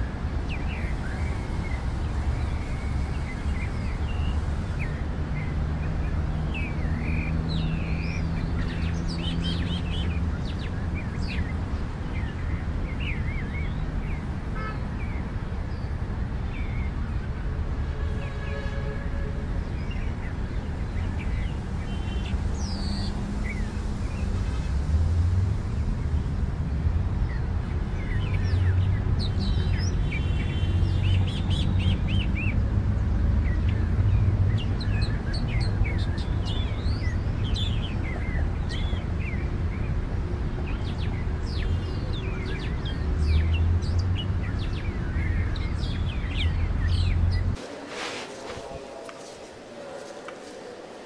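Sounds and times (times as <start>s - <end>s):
birds chirping and calling: 33.5s - 51.0s.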